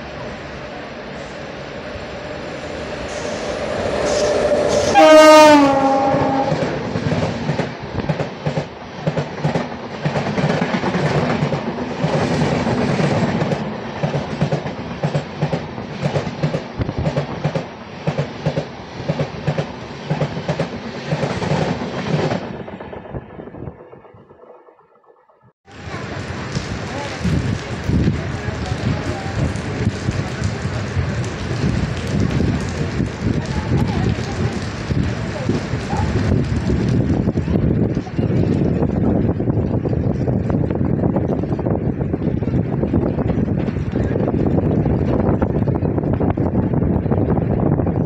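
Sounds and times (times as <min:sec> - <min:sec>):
train horn blaring: 0:02.0 - 0:06.9
train wheels clattering: 0:02.6 - 0:24.8.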